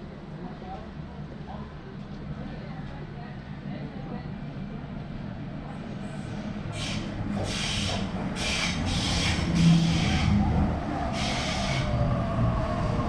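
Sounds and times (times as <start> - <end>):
train wheels rumbling on rail: 5.0 - 13.0
brake hiss: 6.2 - 10.4.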